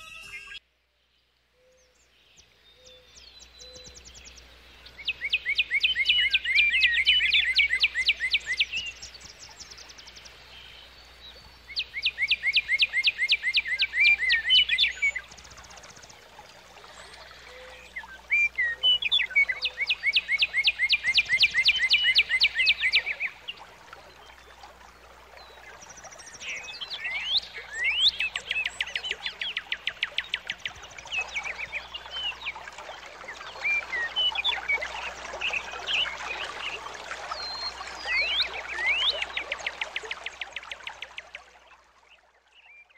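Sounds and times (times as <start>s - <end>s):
bird chirps and whistles: 0.0s - 0.6s
bird trills: 0.0s - 0.6s.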